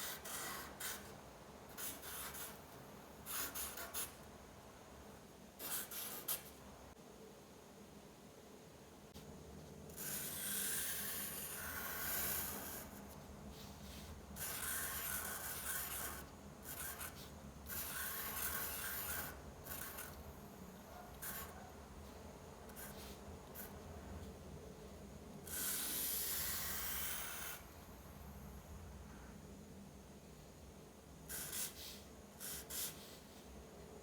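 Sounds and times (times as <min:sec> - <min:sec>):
pen scratching on paper: 0:00.0 - 0:01.1, 0:01.7 - 0:02.6, 0:10.0 - 0:20.2, 0:21.0 - 0:23.8, 0:31.3 - 0:33.3.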